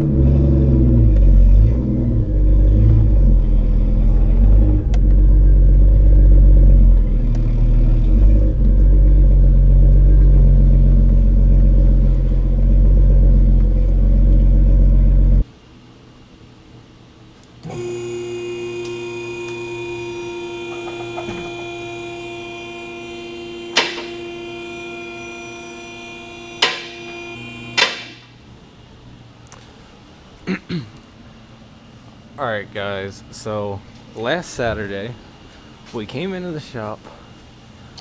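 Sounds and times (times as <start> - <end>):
car engine running: 0.0 - 15.4.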